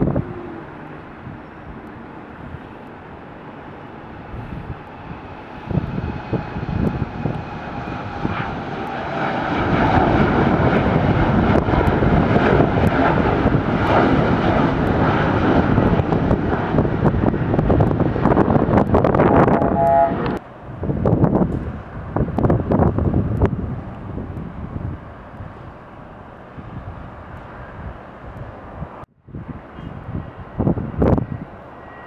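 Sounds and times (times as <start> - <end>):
faint engine whine: 0.0 - 10.7, 19.0 - 20.7
airliner engines rumbling: 0.0 - 32.0.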